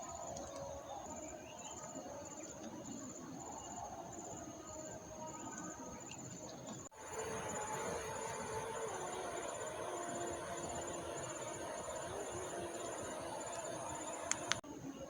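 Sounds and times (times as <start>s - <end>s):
cricket-like trills: 0.0s - 15.0s
high insect buzz: 6.9s - 14.6s
background hiss: 6.9s - 15.0s
insect chirring: 7.0s - 14.6s.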